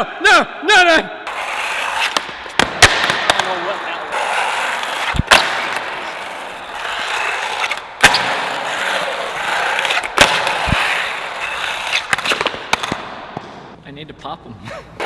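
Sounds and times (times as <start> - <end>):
skateboard rolling on bearings: 1.3 - 13.0
skateboard cracks: 1.3 - 13.2.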